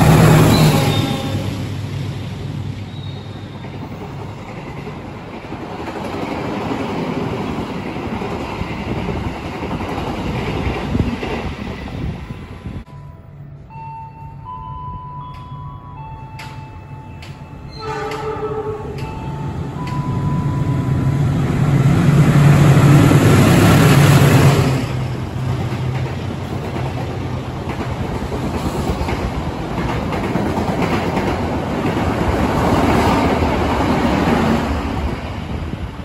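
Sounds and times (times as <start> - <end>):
diesel locomotive passing: 0.0 - 36.0
train horn blast: 0.1 - 1.6, 17.7 - 19.5.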